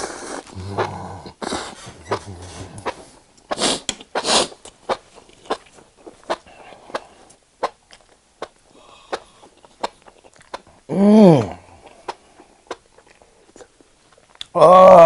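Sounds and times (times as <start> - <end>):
wet chewing: 2.8 - 10.7, 11.8 - 14.5
sticky mouth click: 6.3 - 10.7.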